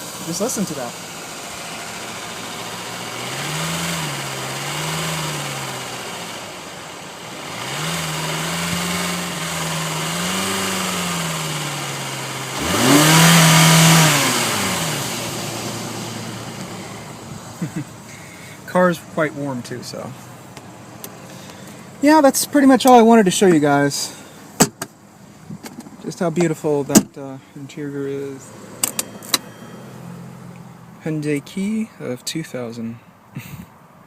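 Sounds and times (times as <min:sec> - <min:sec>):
car engine revving: 0:00.0 - 0:31.3
engine lifter tapping: 0:20.2 - 0:22.0, 0:24.5 - 0:27.2, 0:28.6 - 0:29.7.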